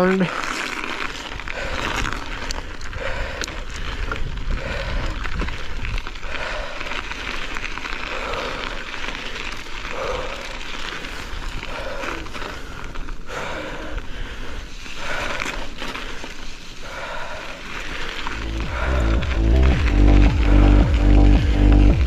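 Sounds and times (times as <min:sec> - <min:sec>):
strong wind buffeting microphone: 0:01.4 - 0:06.9.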